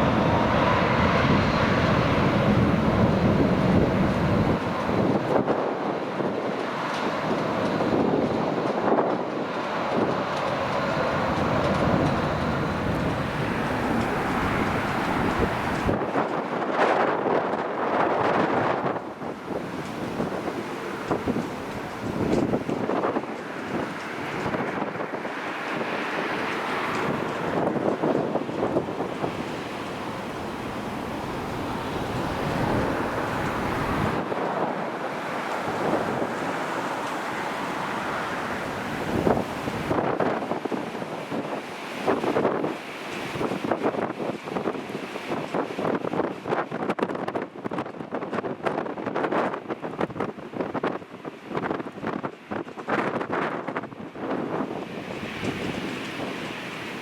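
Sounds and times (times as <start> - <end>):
aircraft engine rumble: 0.0 - 40.6
wind buffeting microphone: 0.0 - 57.0.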